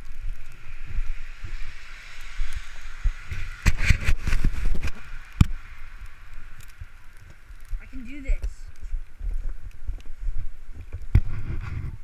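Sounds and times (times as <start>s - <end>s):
scraping hiss in snow: 0.0s - 8.1s, 11.2s - 12.0s
wind buffeting microphone: 0.0s - 12.0s.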